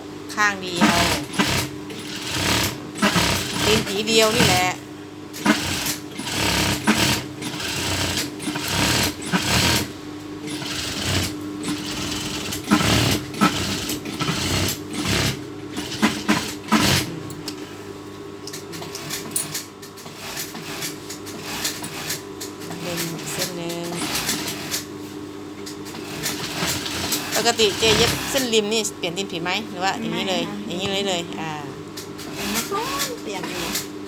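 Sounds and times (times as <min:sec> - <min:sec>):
sewing machine stitching: 0:00.7 - 0:04.8, 0:05.4 - 0:09.9, 0:10.5 - 0:17.1, 0:18.8 - 0:24.9, 0:25.9 - 0:28.5, 0:32.2 - 0:33.9.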